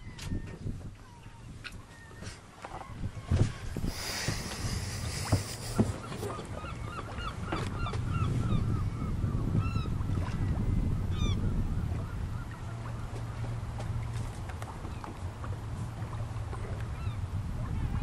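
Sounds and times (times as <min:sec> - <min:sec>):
bird calling: 0:03.9 - 0:09.9.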